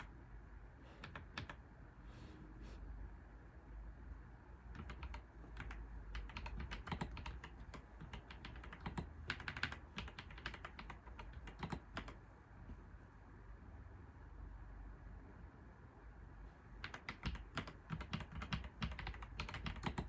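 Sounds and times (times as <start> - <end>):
low steady background hum: 0.0 - 20.0
computer keyboard typing: 1.0 - 1.6, 4.7 - 12.3, 16.7 - 20.0.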